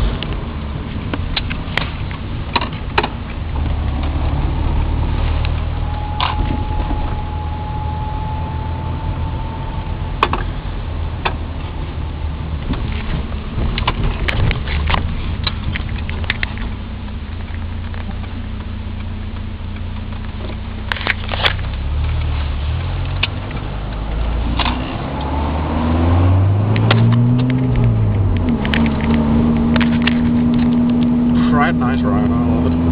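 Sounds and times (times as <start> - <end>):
car engine and road drone: 0.0 - 32.9
sharp clicks and knocks: 0.1 - 4.4, 10.2 - 10.5, 12.6 - 25.4, 26.7 - 31.2
steady high tone: 3.8 - 11.2.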